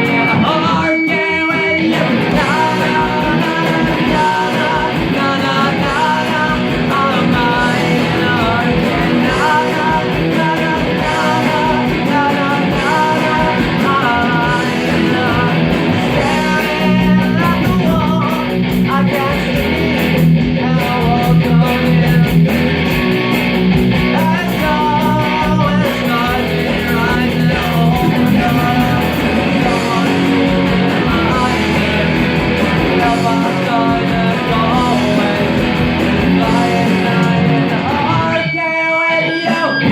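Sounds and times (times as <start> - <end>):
guitar-led rock music: 0.0 - 39.9.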